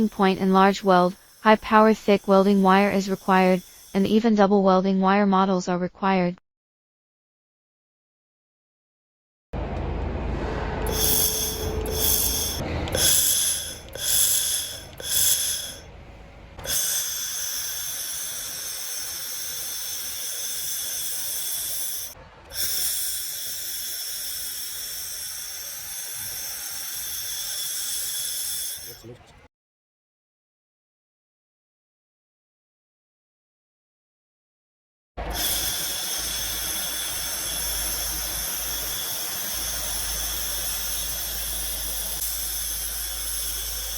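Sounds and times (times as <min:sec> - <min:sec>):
laser welder hiss and whine: 0:00.0 - 0:04.2, 0:10.9 - 0:15.9, 0:16.6 - 0:29.0, 0:35.2 - 0:43.9
low rumble: 0:09.6 - 0:15.0.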